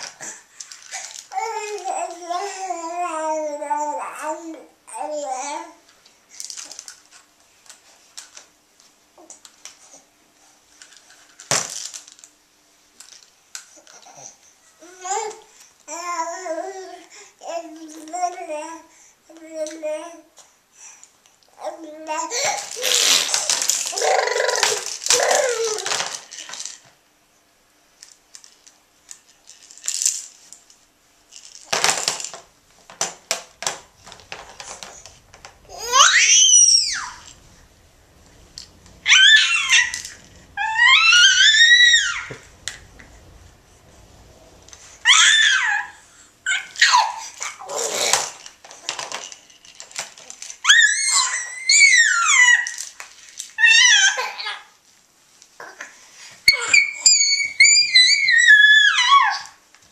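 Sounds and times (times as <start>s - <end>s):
small hard objects clattering: 10.9s - 12.3s, 22.4s - 26.9s, 28.3s - 45.8s, 47.8s - 51.2s
baby vocalising loudly: 22.2s - 26.0s, 35.6s - 37.5s, 39.0s - 42.8s, 44.9s - 48.3s.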